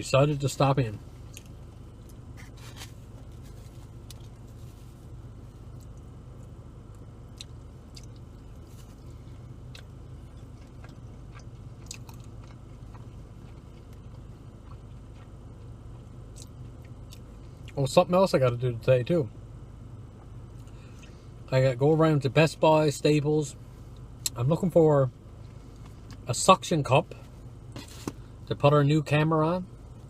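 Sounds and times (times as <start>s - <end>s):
steady low hum: 0.0s - 30.0s
chewing and biting pizza: 1.2s - 17.8s.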